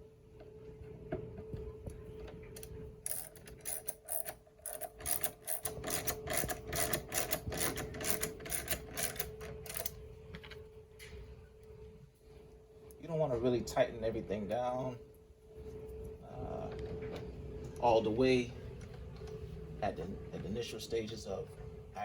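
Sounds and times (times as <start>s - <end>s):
hand ratchet clicking: 3.0s - 9.9s.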